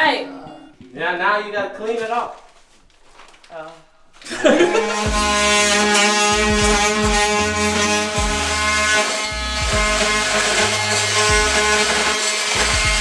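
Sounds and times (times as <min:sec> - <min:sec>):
instrumental music with bass line: 0:04.7 - 0:13.0.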